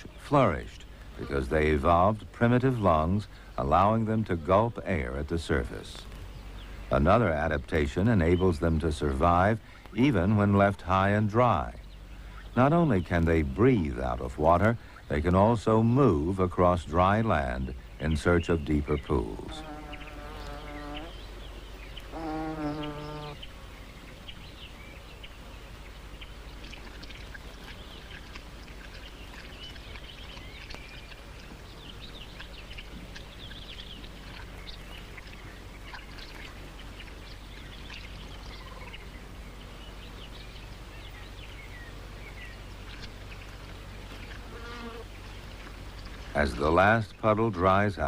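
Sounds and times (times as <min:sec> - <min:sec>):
small birds chirping: 0:00.0 - 0:48.0
steady pitched bird call: 0:17.4 - 0:46.2
insect buzzing: 0:19.5 - 0:23.8, 0:44.2 - 0:45.2.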